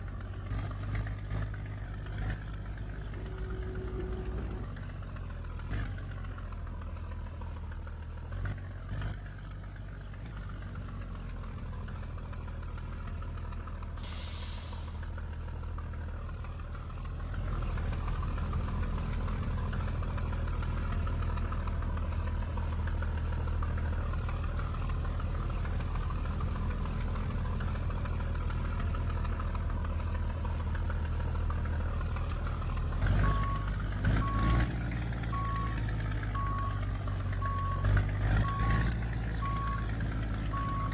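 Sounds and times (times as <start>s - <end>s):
truck diesel engine running: 0.0s - 40.9s
reversing alarm beeping: 35.3s - 36.8s, 37.4s - 37.8s.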